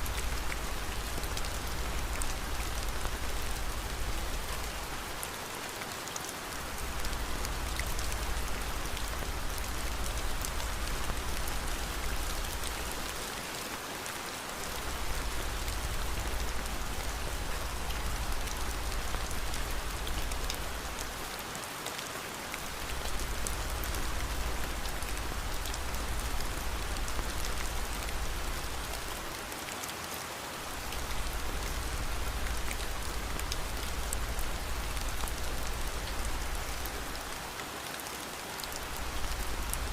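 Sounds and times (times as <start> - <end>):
steady rain hissing: 0.0 - 39.9
raindrop ticks: 6.5 - 13.2, 14.6 - 21.4, 22.5 - 29.5, 30.6 - 38.0, 38.6 - 39.9.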